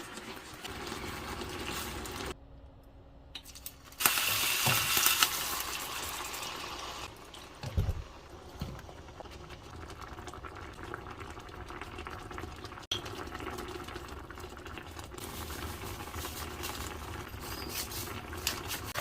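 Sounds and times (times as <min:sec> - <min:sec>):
food sizzling in a pan: 0:00.0 - 0:02.4, 0:03.9 - 0:07.2.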